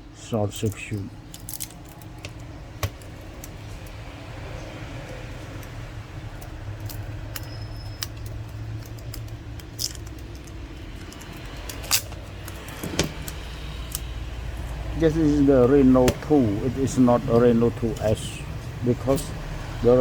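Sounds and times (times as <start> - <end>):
small parts clicking and tapping: 0.6 - 4.0, 5.0 - 14.8.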